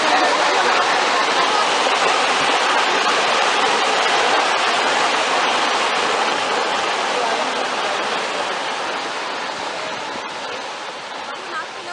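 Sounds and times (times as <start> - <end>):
fast-flowing water rushing: 0.0 - 11.9.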